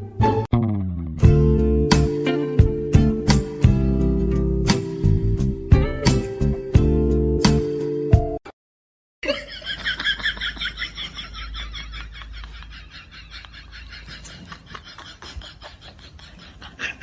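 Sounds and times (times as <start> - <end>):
person laughing hard: 9.2 - 17.0.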